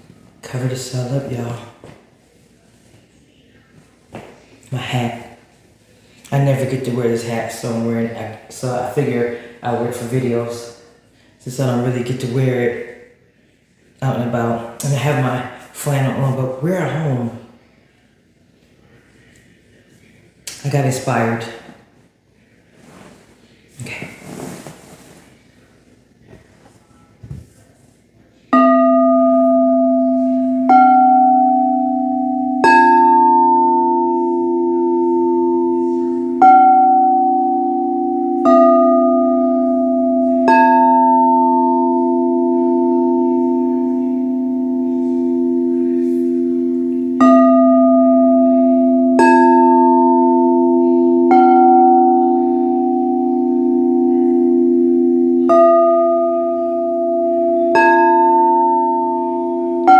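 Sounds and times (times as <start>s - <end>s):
crystal singing bowls ringing: 28.5s - 59.9s.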